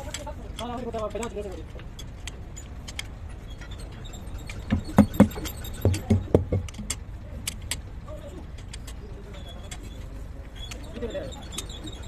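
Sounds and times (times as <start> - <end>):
sharp knocks: 4.7 - 6.9.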